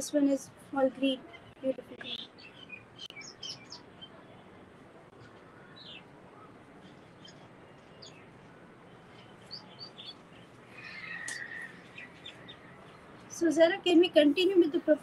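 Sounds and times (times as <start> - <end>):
faint bird chirps: 5.2 - 13.4.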